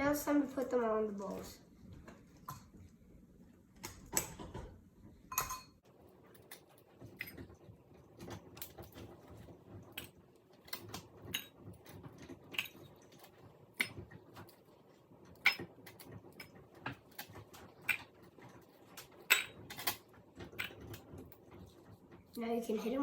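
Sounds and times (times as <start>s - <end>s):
utensils clinking against dishes: 5.3s - 5.8s, 9.8s - 14.6s, 15.3s - 21.6s.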